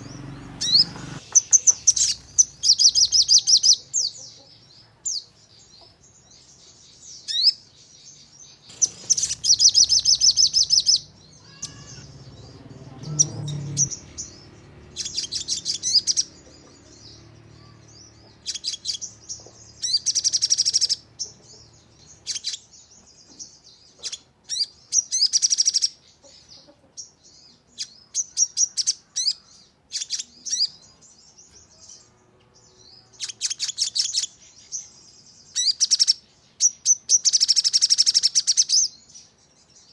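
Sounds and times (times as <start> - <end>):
songbird rapid rattling song: 0.0 - 4.8, 5.4 - 39.9
bird chirps: 0.0 - 39.9.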